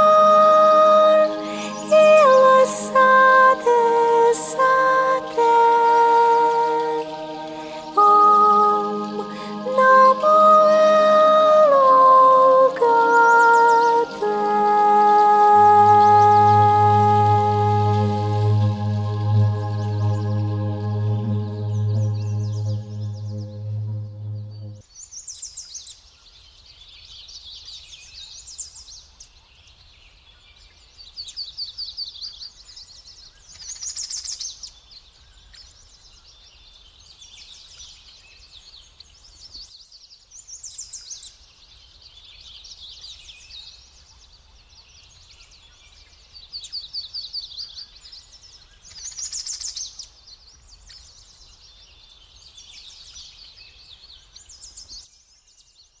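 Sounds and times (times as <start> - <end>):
faint low hum: 0.0 - 24.8.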